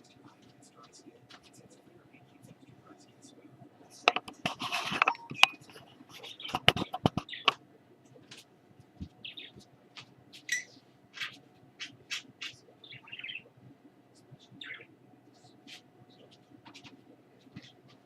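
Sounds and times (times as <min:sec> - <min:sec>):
pet bird chirping: 0:05.1 - 0:07.6, 0:09.2 - 0:09.6, 0:10.4 - 0:13.5, 0:14.4 - 0:17.0.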